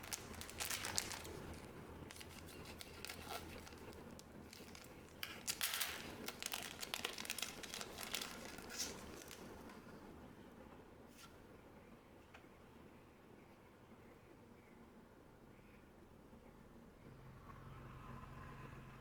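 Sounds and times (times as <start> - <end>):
wrappers crinkling and tearing: 0.0 - 9.8.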